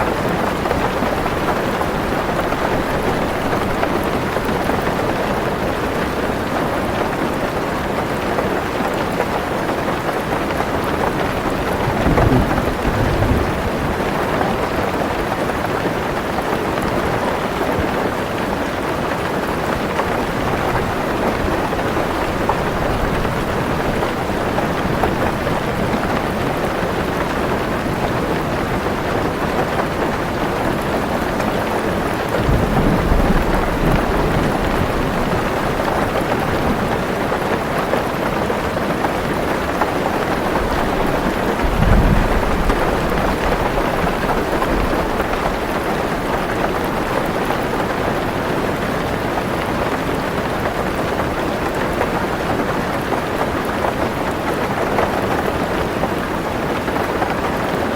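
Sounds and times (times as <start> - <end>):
rain on a car roof: 0.0 - 57.9
thunder rolling: 10.0 - 16.5, 32.0 - 37.2, 39.9 - 47.6.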